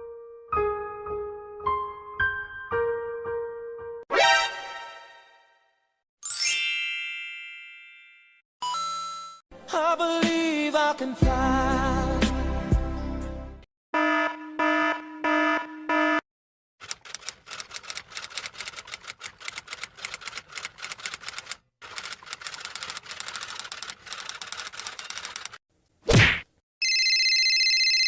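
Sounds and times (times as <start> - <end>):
rapid typing clicks on keys: 16.8 - 25.6.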